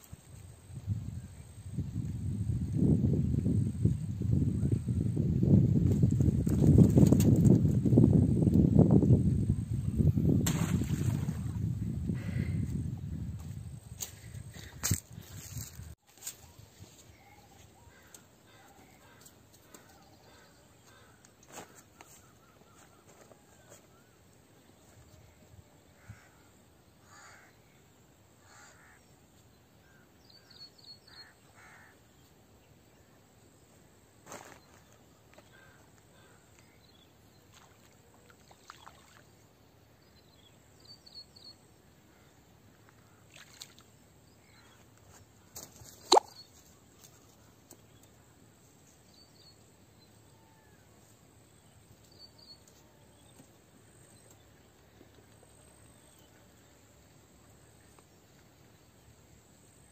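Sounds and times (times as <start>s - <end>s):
birds cawing: 27.0s - 27.6s, 28.4s - 29.0s, 31.1s - 32.0s.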